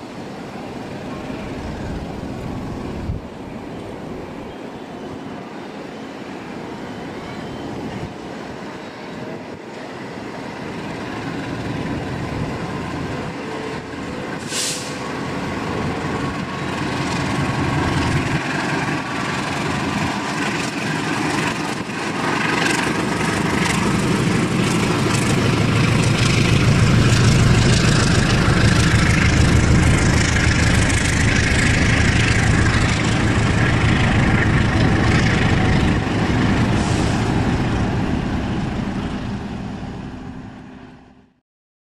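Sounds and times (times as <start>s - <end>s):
train wheels on rails: 0.0s - 40.9s
locomotive engine rumble: 10.7s - 41.2s.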